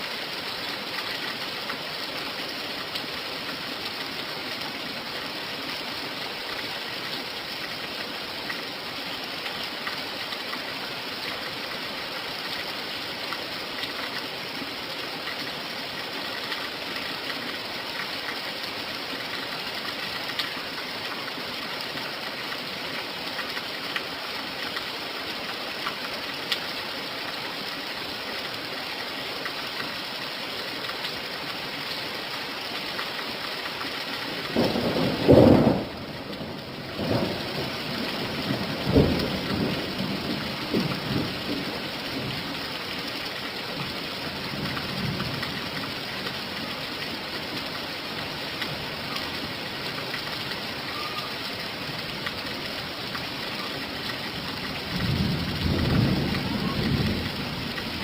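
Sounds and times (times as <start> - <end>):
steady rain: 0.0 - 58.0
thunder rumbling: 34.6 - 41.6.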